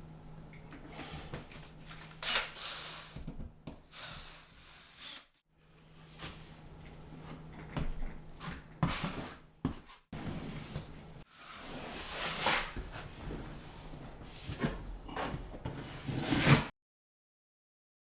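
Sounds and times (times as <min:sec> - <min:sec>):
drywall knife scraping compound: 0:08.4 - 0:13.2, 0:14.3 - 0:16.7.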